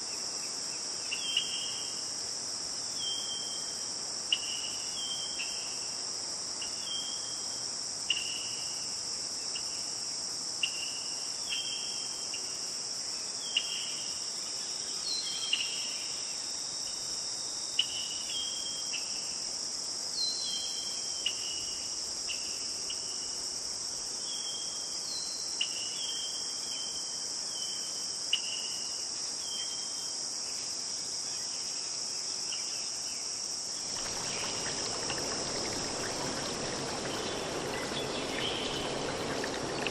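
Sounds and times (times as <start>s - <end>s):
insects chorus: 0.0s - 39.9s
rushing noise: 33.8s - 39.9s.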